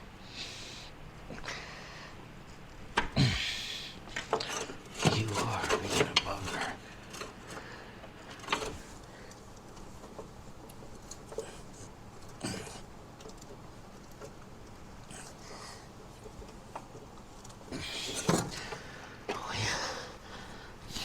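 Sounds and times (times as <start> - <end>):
tools rattling and scraping: 4.1 - 18.9.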